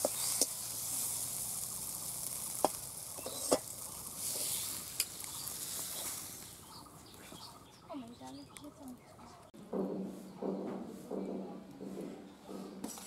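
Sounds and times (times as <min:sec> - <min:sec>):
food sizzling in a pan: 0:00.0 - 0:06.7.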